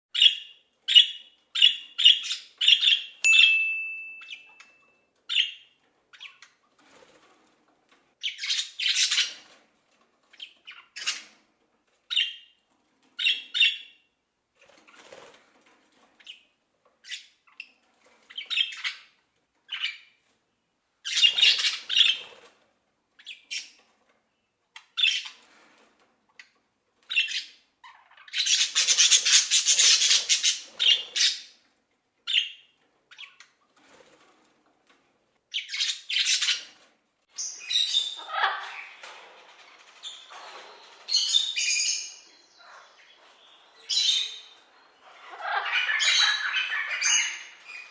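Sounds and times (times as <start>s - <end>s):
parrots squawking: 27.1s - 31.5s, 37.4s - 39.2s, 39.8s - 47.9s.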